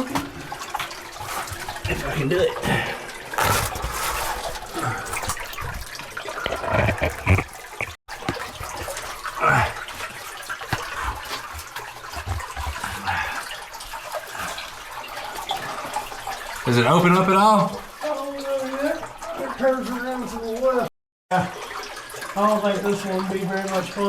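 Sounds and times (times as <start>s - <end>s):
water trickling and splashing: 0.0s - 24.0s
person crawling scuffs and knocks: 3.4s - 5.9s, 6.5s - 13.4s.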